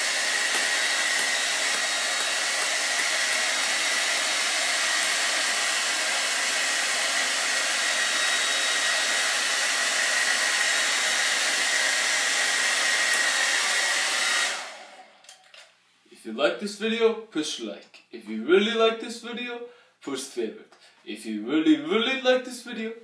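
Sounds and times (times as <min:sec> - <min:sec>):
hair dryer running: 0:00.0 - 0:15.2.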